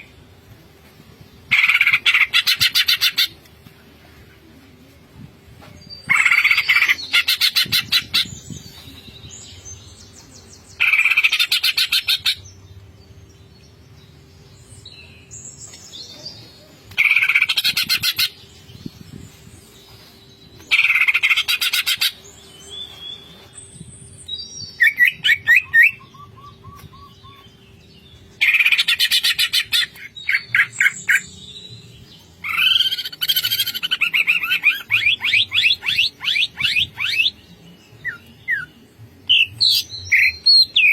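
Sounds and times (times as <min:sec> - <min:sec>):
bird singing chattering notes: 0:24.2 - 0:40.9.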